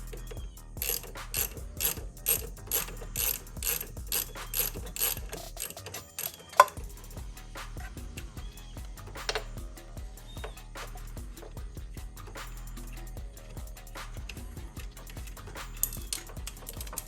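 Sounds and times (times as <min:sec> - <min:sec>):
ratchet wrench clicking: 0:00.0 - 0:07.1, 0:09.2 - 0:09.5, 0:13.7 - 0:17.0.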